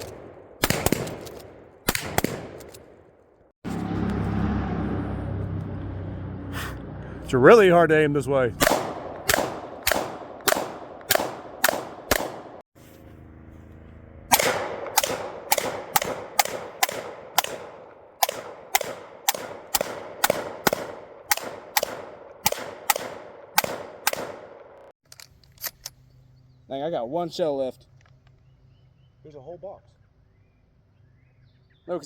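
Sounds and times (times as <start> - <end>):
rapid gunshots: 0.0 - 2.6, 8.6 - 12.6, 14.3 - 24.6.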